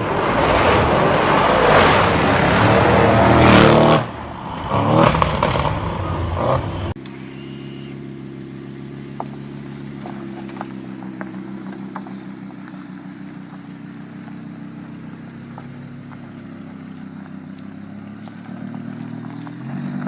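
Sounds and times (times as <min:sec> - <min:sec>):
car engine revving: 0:00.0 - 0:20.0
car engine idling: 0:04.0 - 0:20.0.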